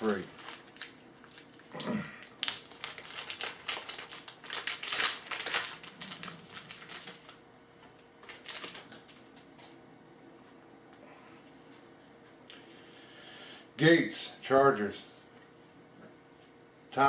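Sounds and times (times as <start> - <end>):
card pack wrapper crackling and tearing: 0.0 - 7.4, 8.2 - 9.2.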